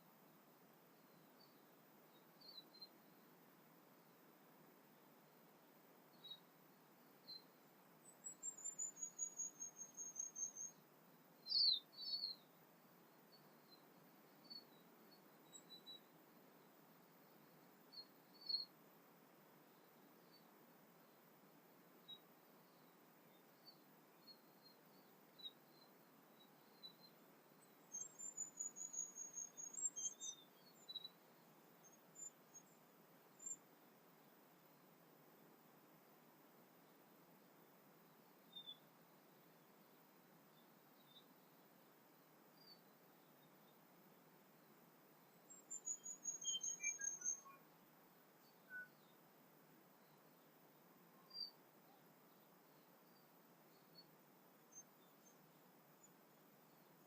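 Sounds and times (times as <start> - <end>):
songbirds chirping: 0.0 - 57.0
songbird singing high notes: 45.8 - 47.6.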